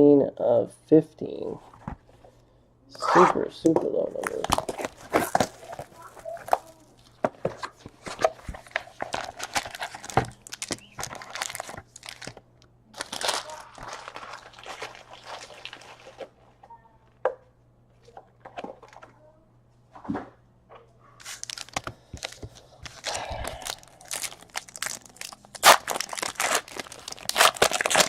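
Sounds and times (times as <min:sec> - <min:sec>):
card wrappers torn and crinkled: 0:04.2 - 0:12.4, 0:13.0 - 0:16.4, 0:21.2 - 0:28.0
packaging rustle: 0:04.2 - 0:12.4, 0:13.0 - 0:16.4, 0:21.2 - 0:28.0.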